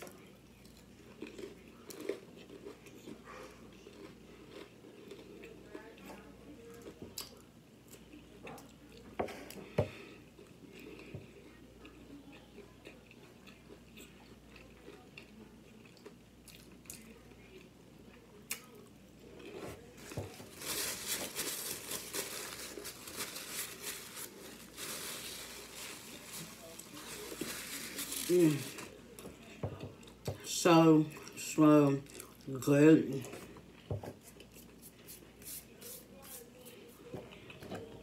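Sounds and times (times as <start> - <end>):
chewing crunchy fried food: 0.0 - 30.3, 31.1 - 32.6
paper napkin crinkling: 20.0 - 29.0.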